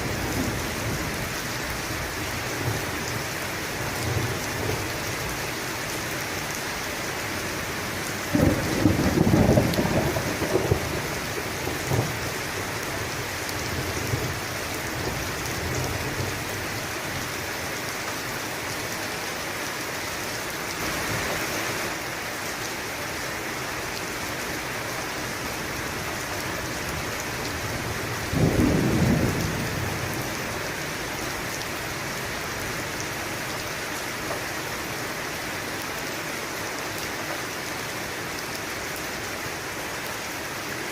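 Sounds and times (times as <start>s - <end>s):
heavy rain: 0.0s - 40.9s
thunder rolling: 8.3s - 12.2s, 28.3s - 30.1s.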